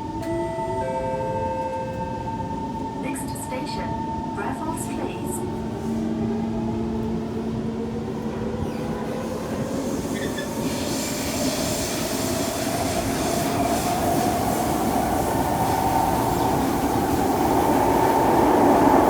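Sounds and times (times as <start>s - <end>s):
train wheels rumbling on rails: 4.7s - 19.0s
hiss: 9.6s - 17.6s.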